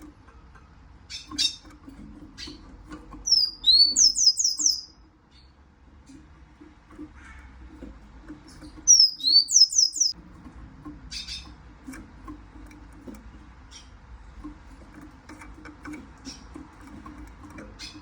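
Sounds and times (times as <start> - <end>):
siskin chirping: 3.2 - 5.5, 8.5 - 10.2
faint ticks and taps: 10.3 - 13.6, 14.3 - 18.0.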